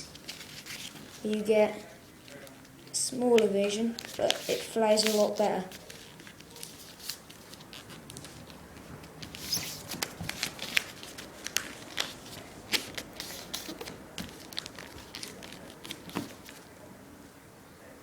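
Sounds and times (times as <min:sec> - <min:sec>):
paper being folded: 0:00.0 - 0:02.6, 0:03.4 - 0:16.7.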